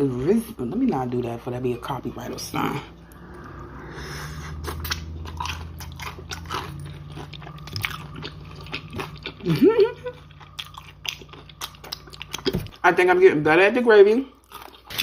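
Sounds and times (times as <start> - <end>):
rising vocal sound: 2.8 - 5.8
crunching fried chicken: 4.6 - 12.8, 14.3 - 15.0.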